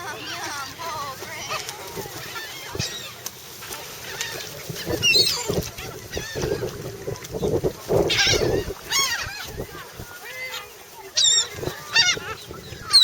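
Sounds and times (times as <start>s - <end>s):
seagulls squawking: 4.0s - 6.8s, 8.0s - 13.0s.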